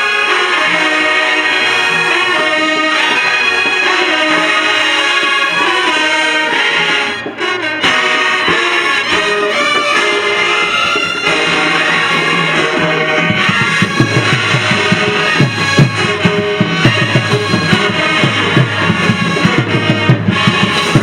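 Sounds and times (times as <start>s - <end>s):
marching band playing: 0.0s - 21.0s
drum hits: 0.8s - 21.0s.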